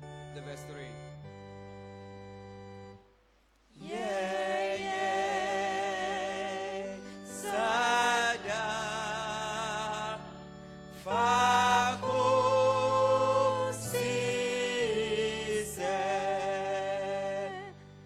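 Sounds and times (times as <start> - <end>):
keyboard chord: 0.0 - 3.2, 3.8 - 18.0
people singing a hymn: 3.7 - 18.0.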